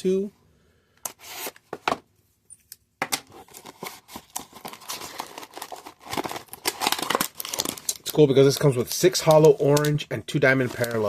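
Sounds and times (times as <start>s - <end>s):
cardboard and wrapper tearing: 3.3s - 8.7s.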